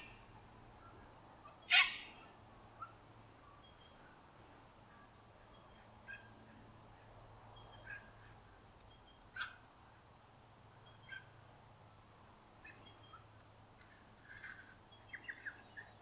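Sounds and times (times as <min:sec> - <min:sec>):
short bird calls: 0:00.8 - 0:04.1.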